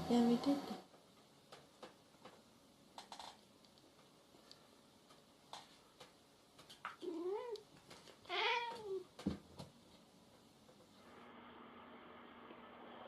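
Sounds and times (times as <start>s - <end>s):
cat yowling: 8.3s - 9.1s.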